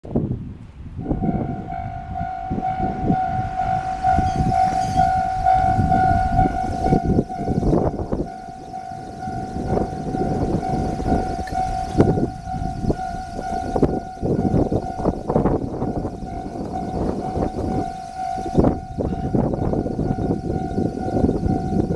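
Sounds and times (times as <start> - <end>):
train rumble: 0.1 - 21.9
steady high-pitched tone: 1.0 - 21.9
wheels clattering on track: 1.1 - 21.9.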